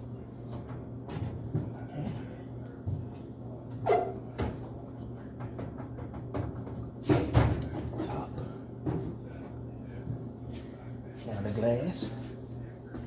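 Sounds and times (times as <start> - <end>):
rag wiping microwave: 0.2 - 4.9
knocks against microwave walls: 5.4 - 8.1.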